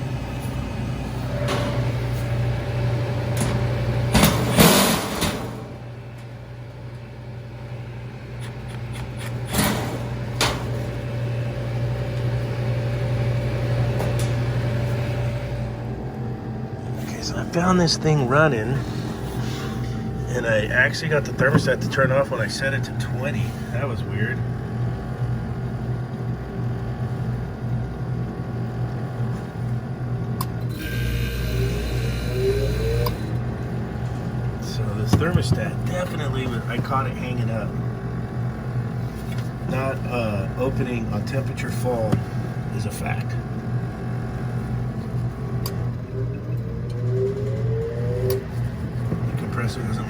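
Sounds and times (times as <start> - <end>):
refrigeration unit humming: 0.0 - 50.0
motor whine rising: 30.7 - 34.8, 45.2 - 50.0.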